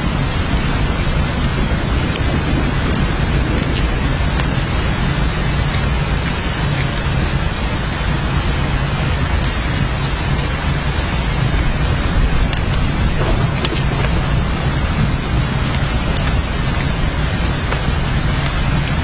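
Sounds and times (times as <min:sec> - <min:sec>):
steady rain falling: 0:00.0 - 0:19.0
single raindrops ticking: 0:09.4 - 0:19.0
low rumble: 0:11.5 - 0:18.9.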